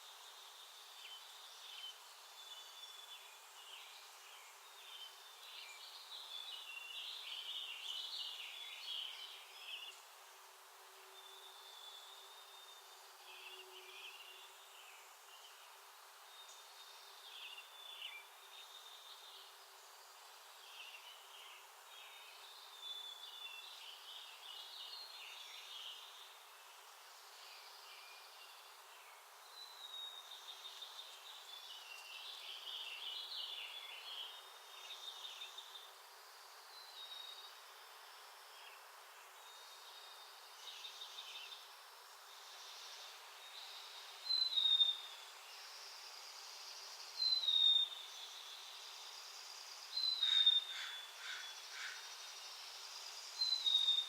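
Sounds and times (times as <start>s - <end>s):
steady outdoor hiss: 0.0s - 54.0s
songbirds chirping and calling: 42.6s - 48.8s, 49.5s - 54.0s.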